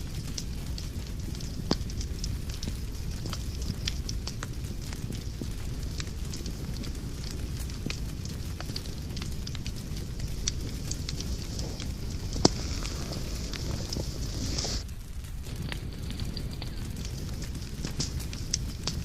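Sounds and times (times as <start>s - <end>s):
fireplace fire crackling: 0.0s - 19.0s
low rumble and hiss: 0.0s - 19.0s
sharp pops: 0.2s - 14.8s.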